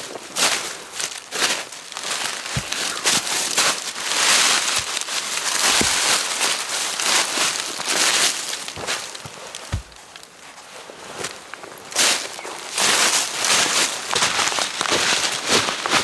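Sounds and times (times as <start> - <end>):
dry leaves and twigs crunching: 0.0 - 16.0
dull thumps: 2.4 - 3.2, 4.6 - 6.6, 8.4 - 10.2.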